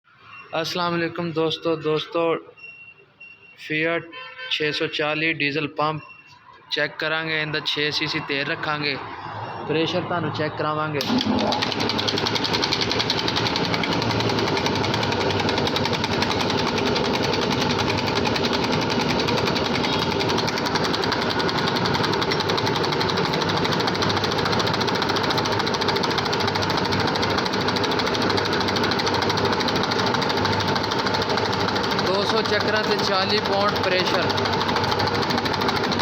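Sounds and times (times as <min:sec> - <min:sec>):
injection pump mechanical chatter: 0:11.0 - 0:36.0.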